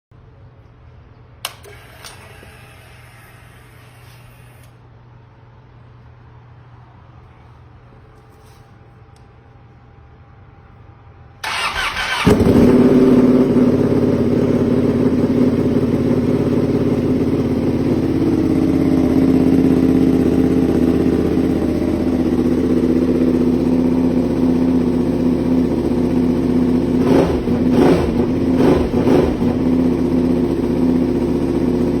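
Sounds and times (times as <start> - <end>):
electric starter cranking: 11.4 - 12.7
motorcycle idling: 11.4 - 32.0.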